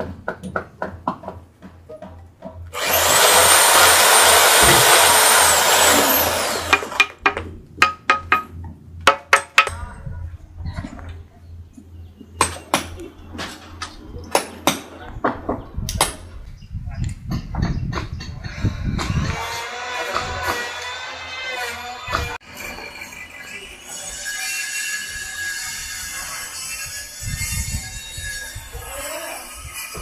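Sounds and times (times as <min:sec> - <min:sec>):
motorised tool whining: 0:02.8 - 0:07.2.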